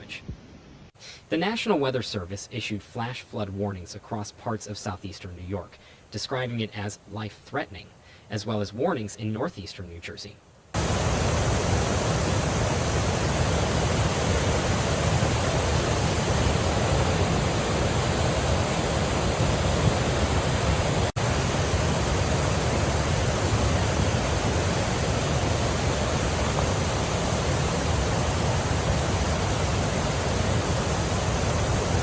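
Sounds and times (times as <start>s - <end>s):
floodwater rushing: 10.8s - 32.0s.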